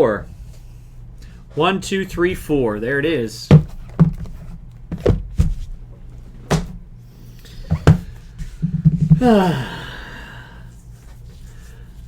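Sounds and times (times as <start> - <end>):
box knocking on a table: 3.5 - 5.7, 7.7 - 9.2
sigh-like voice sound: 9.2 - 10.5.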